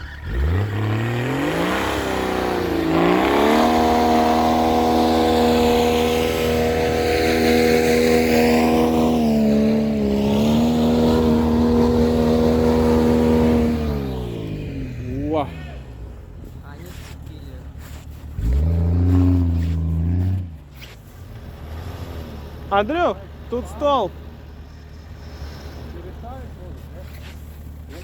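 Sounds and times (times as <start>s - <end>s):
engine revving hard: 0.0s - 15.8s, 18.3s - 20.7s.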